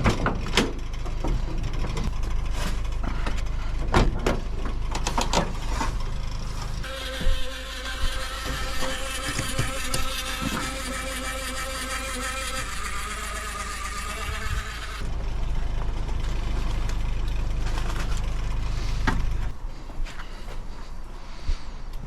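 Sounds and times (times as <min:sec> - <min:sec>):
pressure washer engine buzzing: 0:04.4 - 0:19.4.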